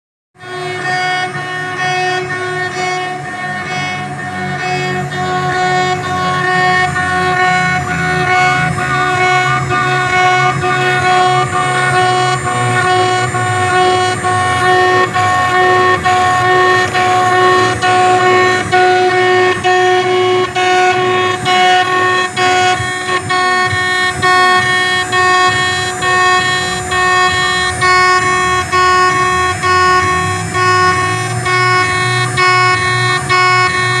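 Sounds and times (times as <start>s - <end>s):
cnc spindle high-pitched whine: 0.4s - 34.0s.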